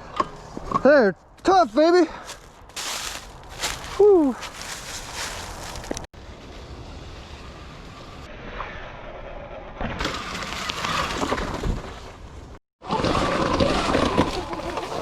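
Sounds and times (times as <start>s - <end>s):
tyres crunching over dirt: 1.2s - 6.1s.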